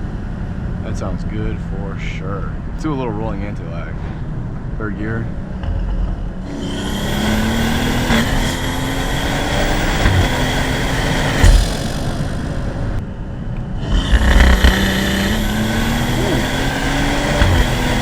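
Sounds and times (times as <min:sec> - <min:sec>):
car engine revving with intake noise: 0:06.4 - 0:13.0, 0:13.8 - 0:18.0.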